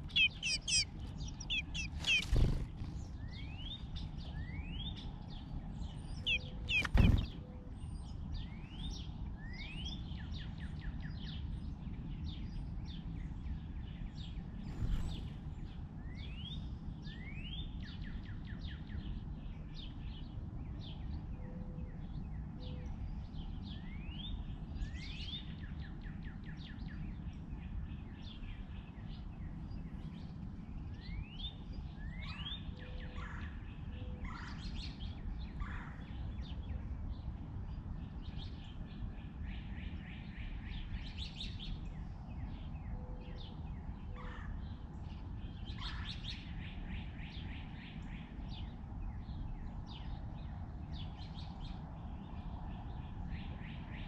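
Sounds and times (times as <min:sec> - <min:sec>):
low background rumble: 0:00.0 - 0:21.4
small birds chirping: 0:00.0 - 0:54.0.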